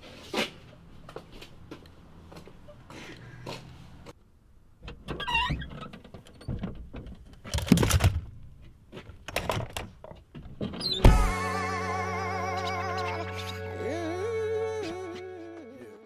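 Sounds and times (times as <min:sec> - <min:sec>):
short wavering squeak: 0:10.8 - 0:15.5.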